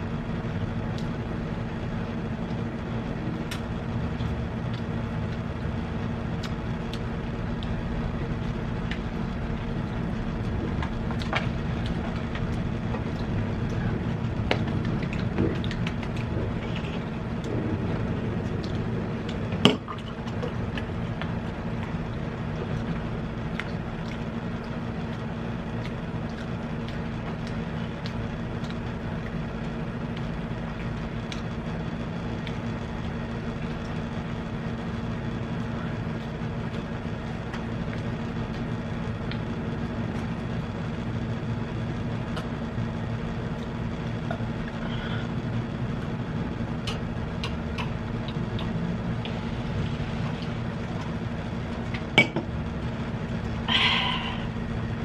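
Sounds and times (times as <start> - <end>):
machine hum: 0.0 - 55.0.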